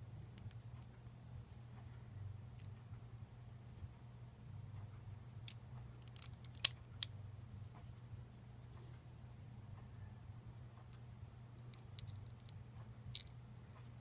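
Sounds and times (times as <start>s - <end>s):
faint low hum: 0.0s - 14.0s
clicks of small hard parts: 5.5s - 7.1s.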